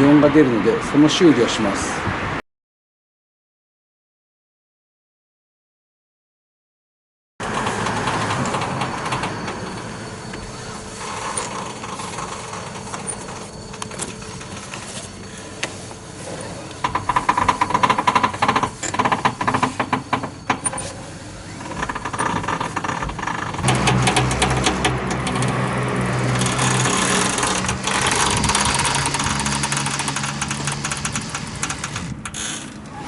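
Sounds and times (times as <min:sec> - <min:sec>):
steady mechanical hum: 0:07.4 - 0:33.0
rapid clicking from steering: 0:22.6 - 0:25.6, 0:26.2 - 0:32.4.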